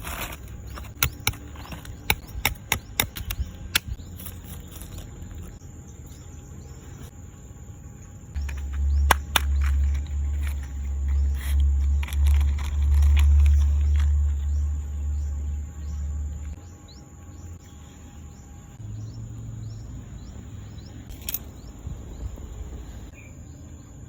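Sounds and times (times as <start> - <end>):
dry twigs cracking: 8.4 - 14.4
loud pulsing low rumble: 8.4 - 16.6.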